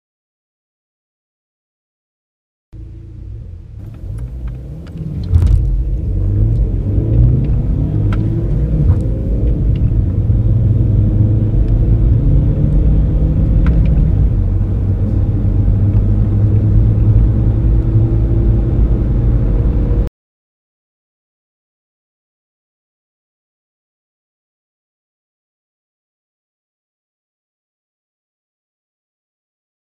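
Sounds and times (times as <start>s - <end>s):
diesel car engine accelerating: 2.8s - 20.1s.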